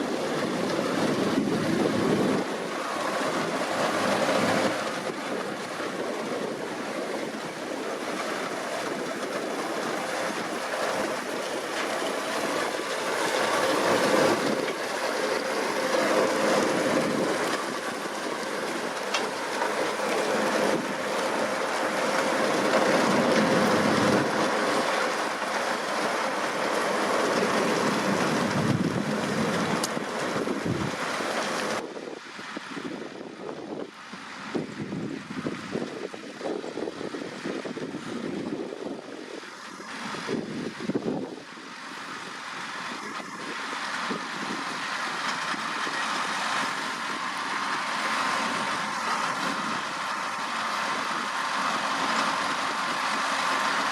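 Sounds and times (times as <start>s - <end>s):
tractor engine hum: 0.0s - 53.9s
machinery clattering and rattling: 0.3s - 31.8s.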